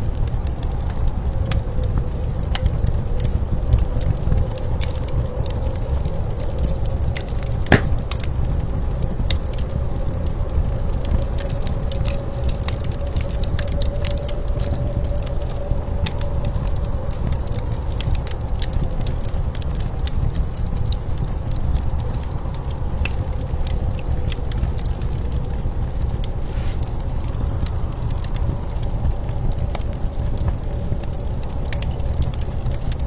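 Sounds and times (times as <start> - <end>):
wood fire crackling and popping: 7.7 - 8.8
howling blizzard wind: 9.9 - 19.1.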